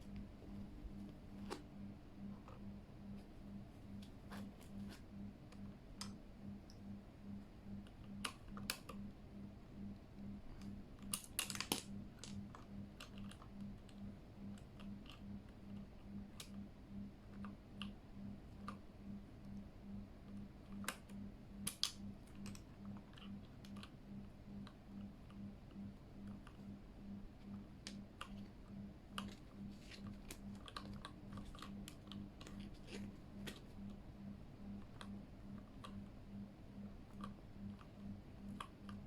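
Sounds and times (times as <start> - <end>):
faint pulsing low hum: 0.0 - 39.0
mechanical keyboard clicks: 10.6 - 16.6.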